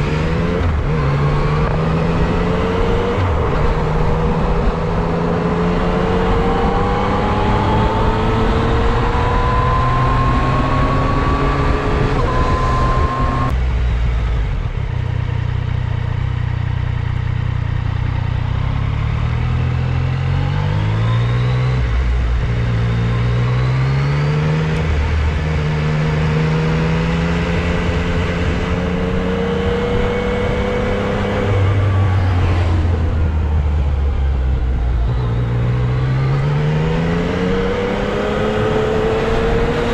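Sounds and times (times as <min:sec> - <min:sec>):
wind rushing over microphone: 0:00.0 - 0:13.5
motorcycle engine accelerating: 0:00.0 - 0:39.9.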